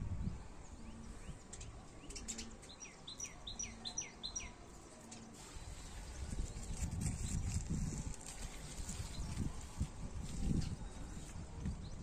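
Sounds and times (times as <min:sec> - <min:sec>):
low steady rumble: 0:00.0 - 0:01.4.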